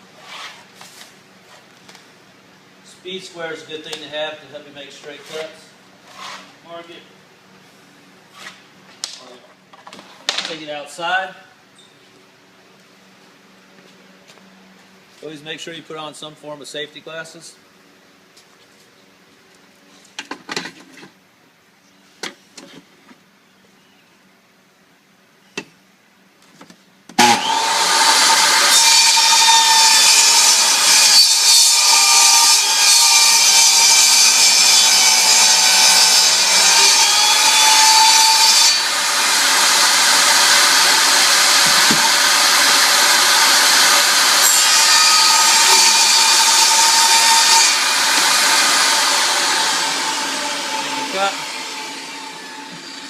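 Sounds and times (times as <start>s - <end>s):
table saw cutting laminate plank: 27.2s - 53.0s.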